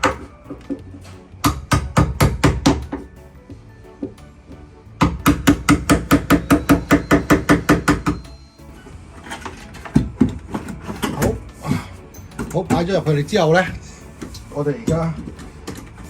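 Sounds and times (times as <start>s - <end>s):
hammer striking wood chisel: 0.0s - 3.2s, 5.0s - 8.4s, 12.4s - 15.9s.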